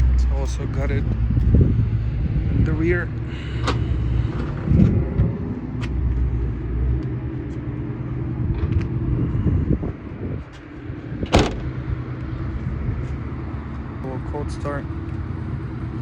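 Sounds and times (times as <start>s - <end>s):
car engine idling: 0.0s - 16.0s
sharp knock: 11.3s - 11.8s.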